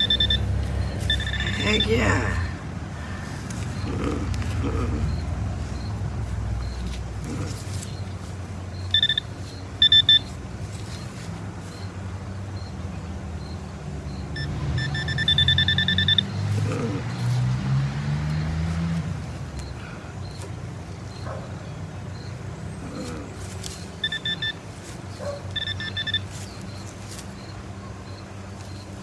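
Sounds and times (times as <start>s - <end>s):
metal detector beeping: 0.0s - 2.5s, 5.0s - 7.0s, 8.8s - 11.9s, 14.1s - 16.9s, 23.8s - 28.9s.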